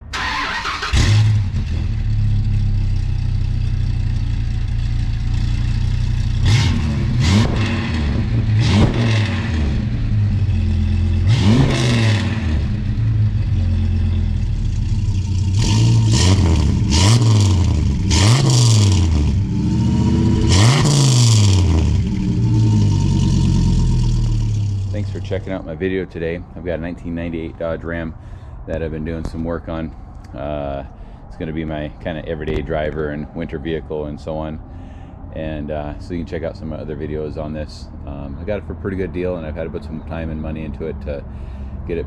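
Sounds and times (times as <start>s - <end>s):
engine revving in short blips: 5.3s - 25.2s
truck engine idling: 11.9s - 15.6s, 22.1s - 39.4s.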